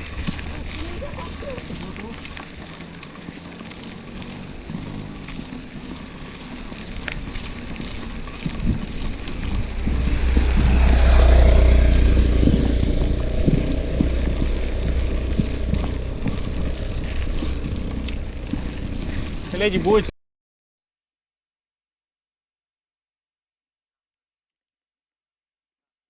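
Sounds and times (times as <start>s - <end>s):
mountain bike rushing noise: 0.0s - 20.1s
wind rumbling on microphone: 0.0s - 20.1s.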